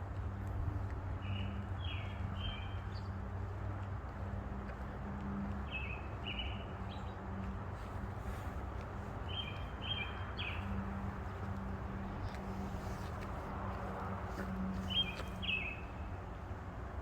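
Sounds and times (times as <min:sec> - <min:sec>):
songbird calling: 0:14.9 - 0:15.9.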